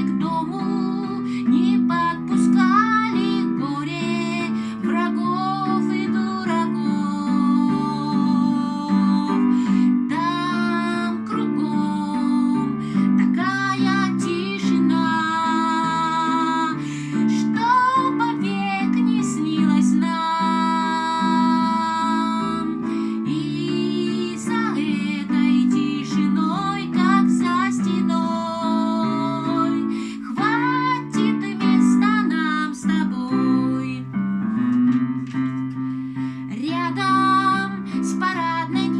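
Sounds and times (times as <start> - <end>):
woman singing: 0.0 - 34.3, 36.4 - 38.9.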